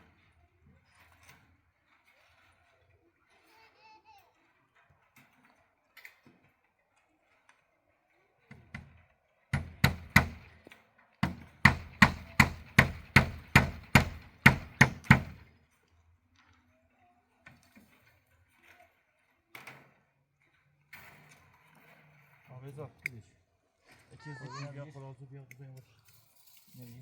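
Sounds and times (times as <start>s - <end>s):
sharp blows on wood: 9.6s - 10.5s, 11.2s - 15.4s.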